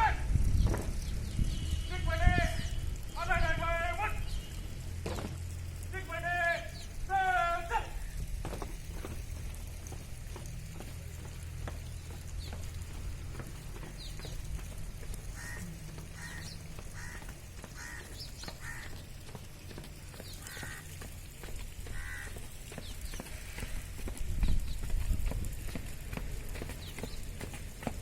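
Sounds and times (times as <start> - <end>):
bird calling: 11.7 - 24.8.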